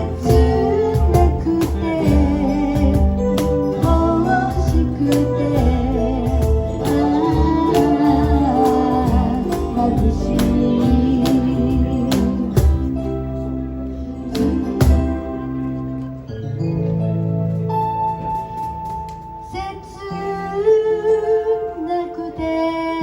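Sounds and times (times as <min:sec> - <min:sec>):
drums keeping a steady beat: 0:00.0 - 0:13.1, 0:14.3 - 0:15.4
live band playing: 0:00.0 - 0:23.0.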